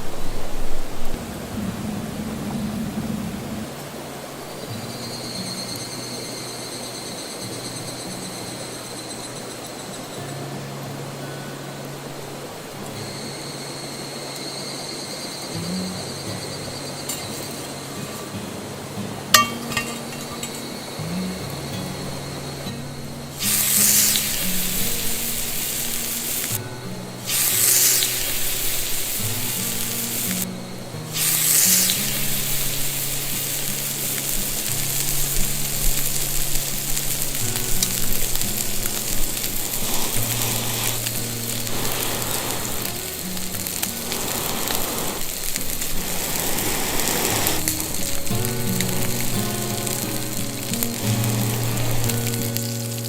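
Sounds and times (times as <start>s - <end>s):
background music: 15.5s - 53.0s
steak sizzling in a pan: 19.3s - 53.0s.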